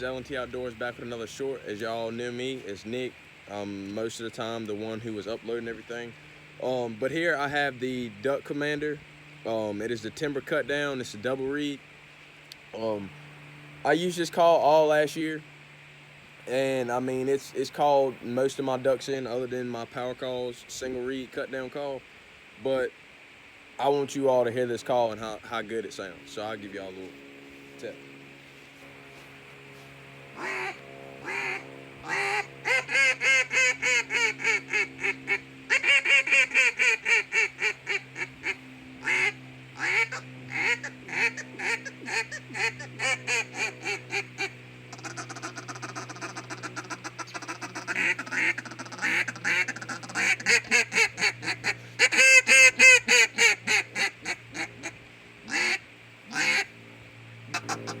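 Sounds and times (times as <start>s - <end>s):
duck call quacks: 30.3s - 56.7s, 57.5s - 58.0s.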